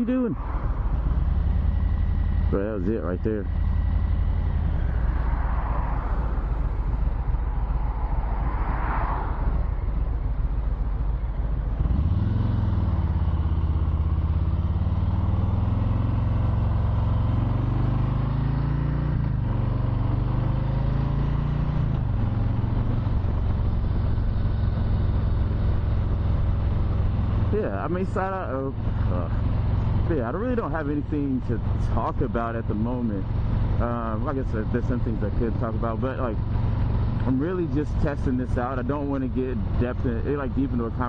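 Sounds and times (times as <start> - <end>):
motorcycle engine accelerating: 0.4 - 41.0.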